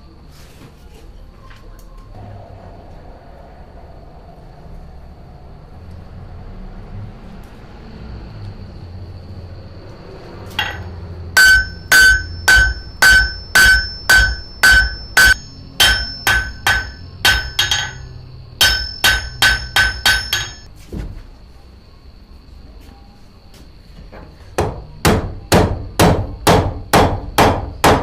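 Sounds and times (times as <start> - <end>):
hammer striking metal on anvil: 10.5 - 20.7.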